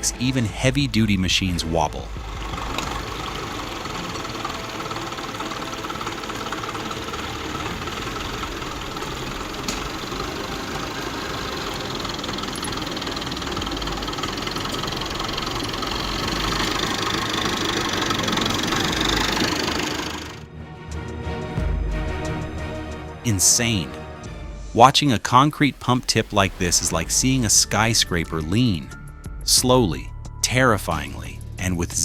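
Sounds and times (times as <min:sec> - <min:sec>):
heavy machine engine running: 0:00.0 - 0:20.5.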